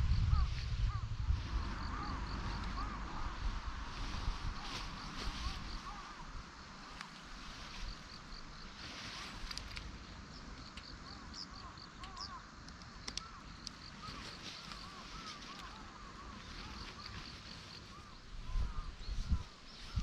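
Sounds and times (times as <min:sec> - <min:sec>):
steady outdoor hiss: 0:00.0 - 0:20.0
birds chirping: 0:04.1 - 0:20.0
sharp clicks: 0:12.0 - 0:13.8.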